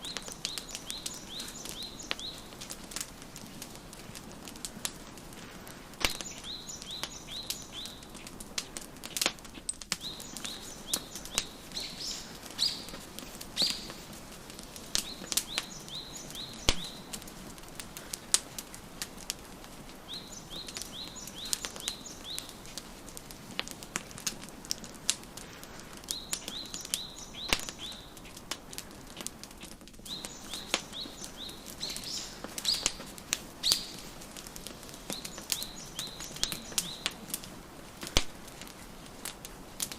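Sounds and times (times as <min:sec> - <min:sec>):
songbird chirping: 0:00.0 - 0:03.8, 0:06.0 - 0:09.2, 0:09.9 - 0:22.9, 0:26.0 - 0:28.4, 0:30.0 - 0:39.1
fire pops: 0:00.0 - 0:39.9
wood fire crackling: 0:00.0 - 0:39.9.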